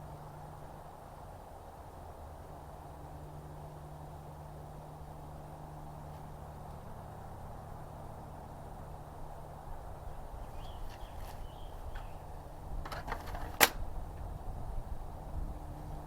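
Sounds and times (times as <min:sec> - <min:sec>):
short clicks and knocks: 0:12.8 - 0:13.8.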